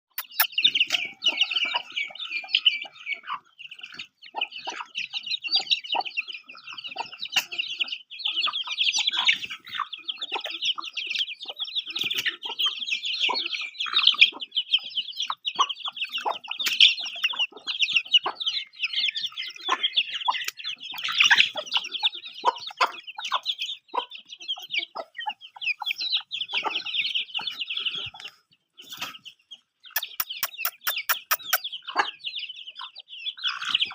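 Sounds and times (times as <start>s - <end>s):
chicks peeping: 0.1s - 33.9s
hen clucking: 0.1s - 33.9s.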